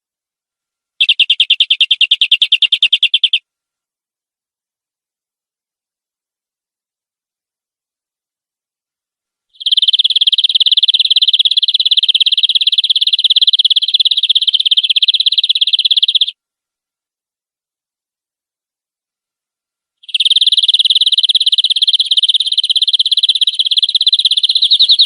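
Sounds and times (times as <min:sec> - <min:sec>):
canary trilling: 0:01.0 - 0:03.4, 0:09.6 - 0:16.4, 0:20.0 - 0:25.0.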